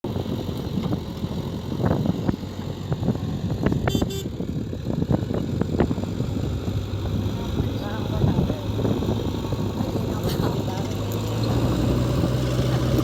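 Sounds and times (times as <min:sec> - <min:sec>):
diesel engine knocking: 0:00.0 - 0:13.0
horn toot: 0:03.8 - 0:04.3.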